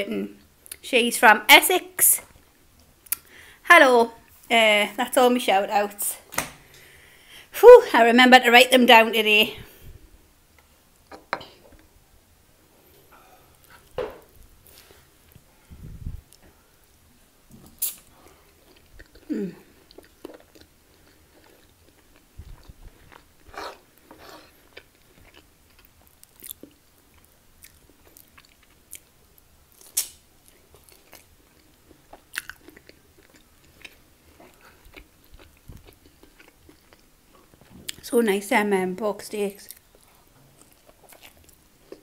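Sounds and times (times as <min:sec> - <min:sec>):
close chewing and biting: 0:17.8 - 0:29.1, 0:29.7 - 0:38.0, 0:39.7 - 0:42.0.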